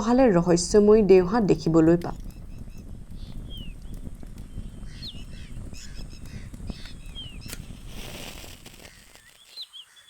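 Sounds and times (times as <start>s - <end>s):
birds whistling downward notes: 2.2s - 7.7s.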